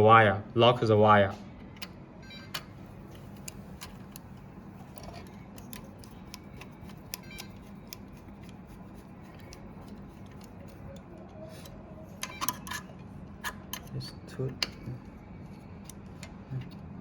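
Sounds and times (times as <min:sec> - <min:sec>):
screwdriver clicks and ticks: 0:01.8 - 0:08.6.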